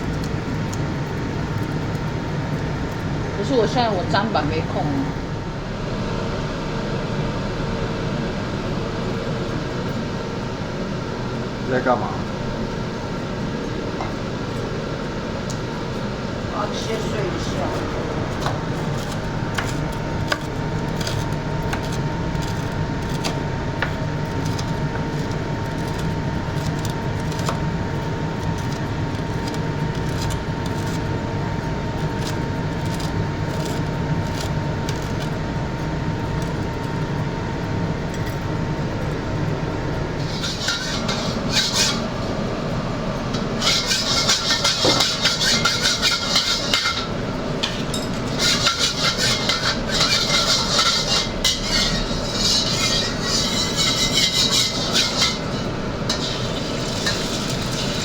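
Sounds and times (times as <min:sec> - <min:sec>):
steady hum with thin whine: 0:00.0 - 0:58.0
food sizzling: 0:12.3 - 0:37.2, 0:39.8 - 0:42.4, 0:43.4 - 0:58.0
utensil clattering in a pan: 0:40.2 - 0:42.2, 0:43.4 - 0:58.0.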